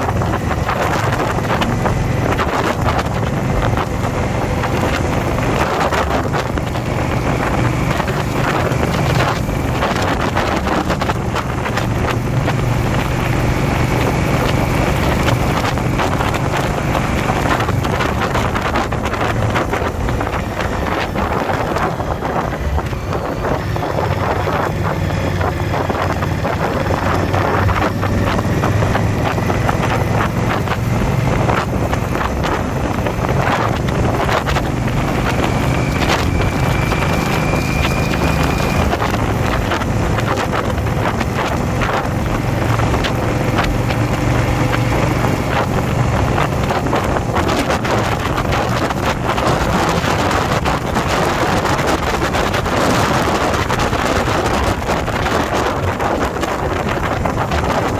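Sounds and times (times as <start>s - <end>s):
motorcycle engine running: 0.0s - 57.9s
wind buffeting microphone: 0.0s - 57.9s.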